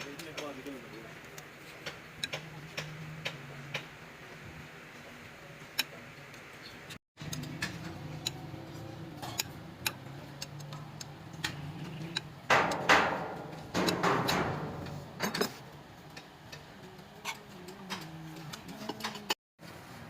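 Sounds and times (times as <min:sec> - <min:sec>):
metal clicks of hand tools: 0:01.2 - 0:03.9, 0:07.2 - 0:19.4.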